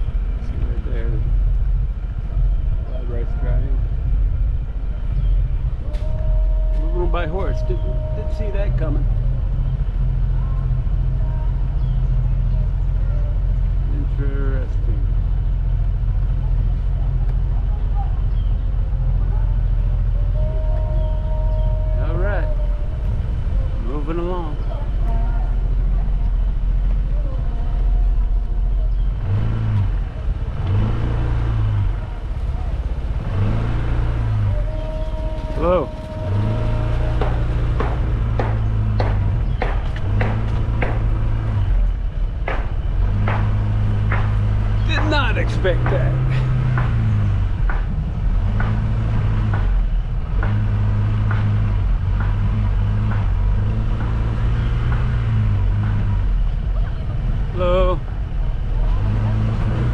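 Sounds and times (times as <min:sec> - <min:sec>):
low rumble: 0:00.0 - 0:59.9
vehicle engine accelerating: 0:00.0 - 0:59.9.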